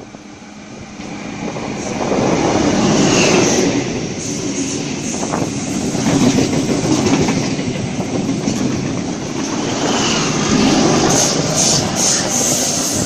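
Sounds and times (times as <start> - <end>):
train wheels clacking on rails: 0.9 - 13.0
high hissing: 9.6 - 13.0.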